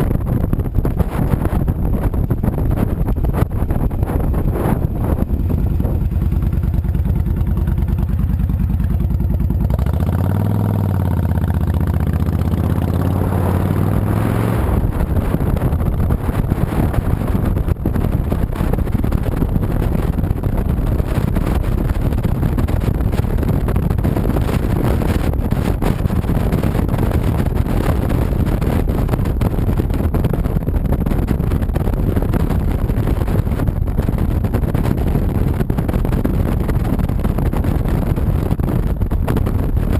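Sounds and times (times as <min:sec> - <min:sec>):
wind and road noise: 0:00.0 - 0:39.9
motorcycle engine revving: 0:00.8 - 0:31.6.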